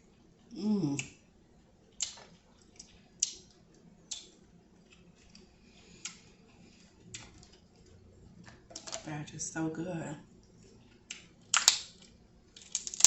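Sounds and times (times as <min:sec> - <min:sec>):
person chewing with wet smacks: 0:01.9 - 0:08.6, 0:10.4 - 0:13.0.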